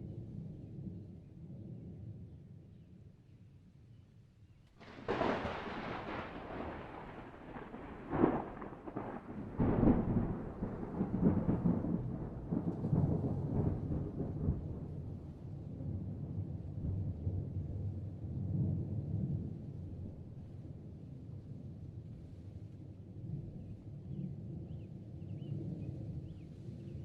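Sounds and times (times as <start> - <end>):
thunder crack and rumble: 4.8 - 21.1.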